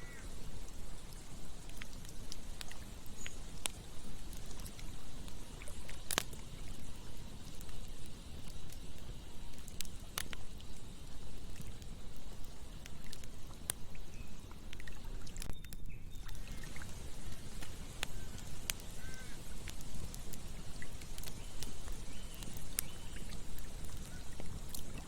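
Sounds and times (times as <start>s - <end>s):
campfire crackling and popping: 0.0s - 25.0s
fire low rushing: 16.3s - 25.0s.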